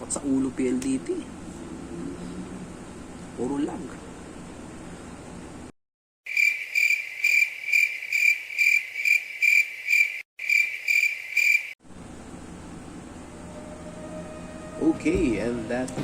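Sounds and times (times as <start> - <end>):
cricket chirping trill: 6.3 - 11.8.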